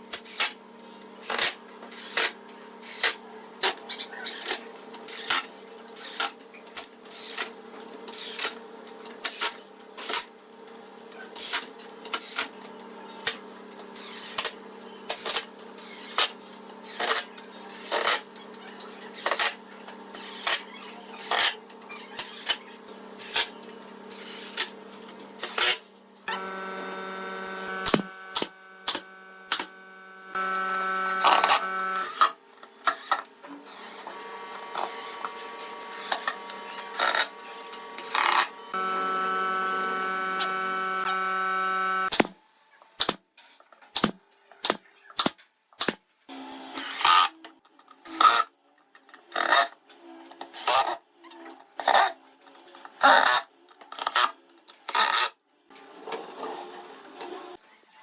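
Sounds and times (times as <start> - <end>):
small power tool running: 25.4 - 32.4, 33.0 - 42.2
steady hum: 26.2 - 32.3, 34.0 - 42.3.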